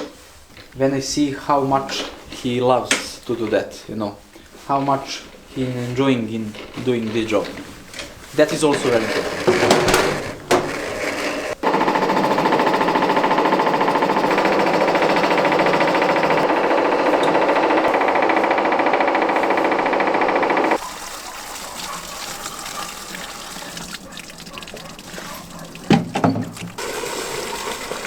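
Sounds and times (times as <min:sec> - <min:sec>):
machine rattling motor: 0:06.6 - 0:20.8.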